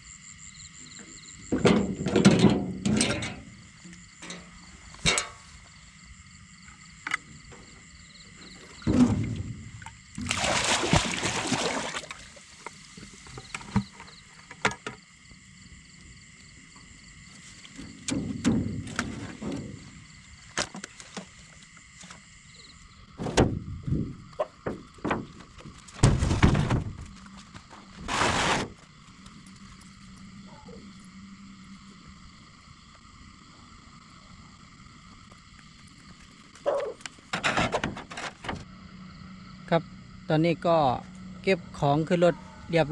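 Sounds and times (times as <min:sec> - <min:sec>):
night insects chorus: 0:00.0 - 0:42.9
paddle strokes and water splashing: 0:08.6 - 0:13.3.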